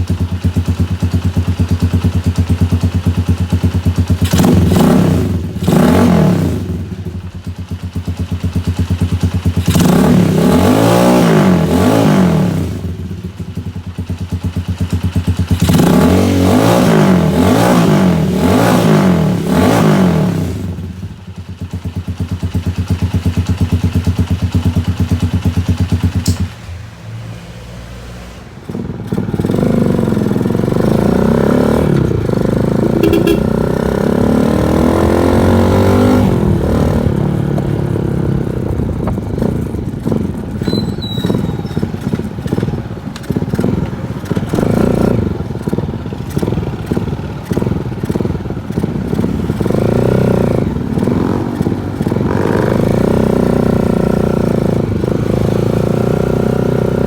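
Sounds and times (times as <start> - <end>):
exhaust popping backfire: 0.0 - 26.9, 28.6 - 57.0
motorcycle engine revving: 0.0 - 57.0.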